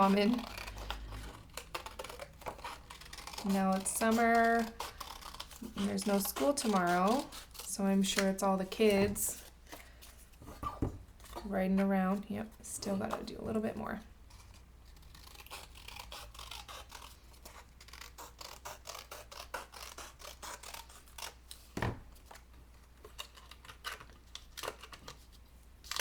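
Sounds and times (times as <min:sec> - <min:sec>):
scissors snipping paper: 0:00.0 - 0:09.5, 0:14.4 - 0:21.4.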